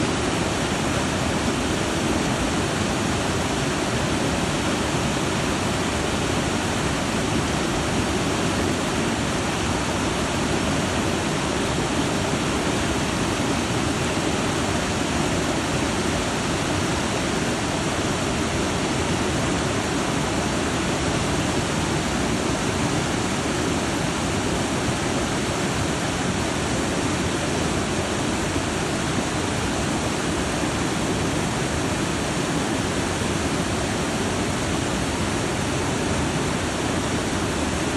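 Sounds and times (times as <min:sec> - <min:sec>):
waterfall rushing over rock: 0:00.0 - 0:37.9.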